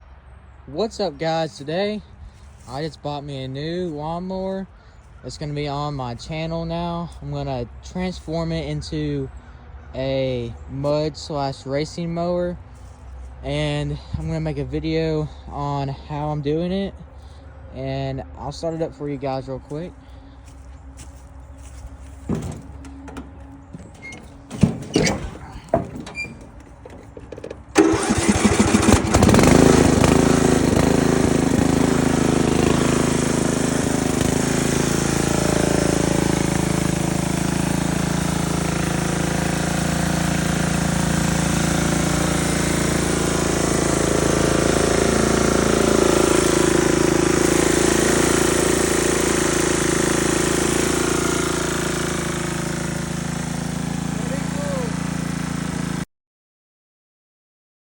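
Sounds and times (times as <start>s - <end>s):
lawn mower engine starting: 21.0s - 56.0s
clicks and knocks: 22.2s - 27.8s.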